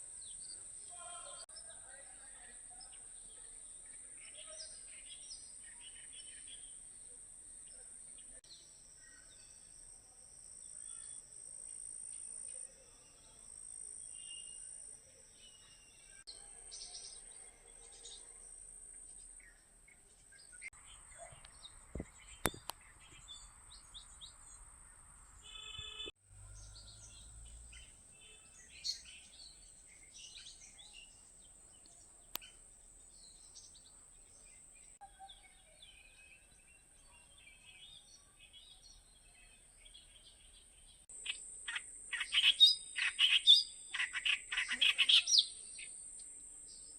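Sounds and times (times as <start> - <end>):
small birds chirping: 0.2 - 18.4, 19.0 - 46.9
steady high-pitched hiss: 41.1 - 46.9.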